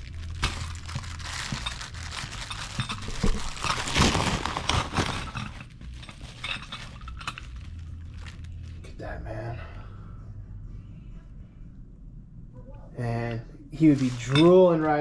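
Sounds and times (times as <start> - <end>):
packaging crinkling and rustling: 0.0 - 8.9, 13.8 - 15.0.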